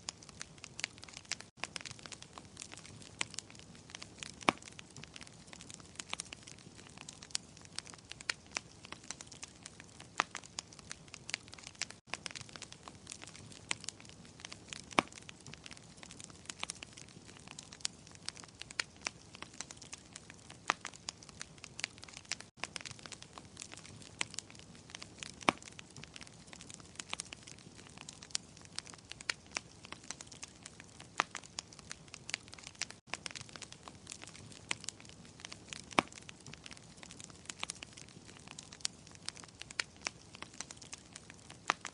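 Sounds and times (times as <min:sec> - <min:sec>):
soft steady hiss: 0:00.0 - 0:41.9
wood fire crackling: 0:00.0 - 0:41.9.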